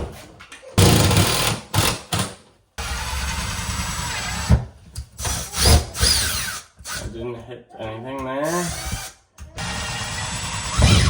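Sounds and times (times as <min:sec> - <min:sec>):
power drill driving a screw: 0:00.8 - 0:02.2, 0:02.8 - 0:04.6, 0:05.2 - 0:07.1, 0:08.4 - 0:11.0.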